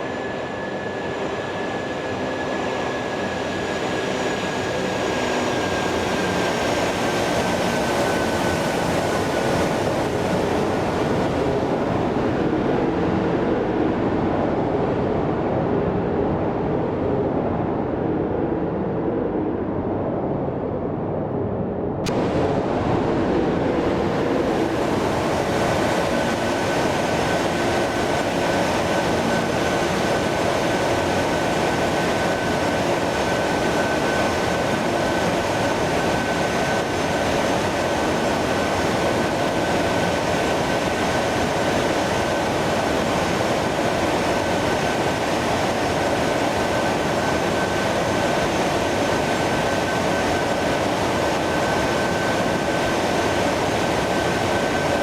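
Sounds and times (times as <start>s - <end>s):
jet engines running: 0.0s - 55.0s
high engine whine: 17.0s - 55.0s.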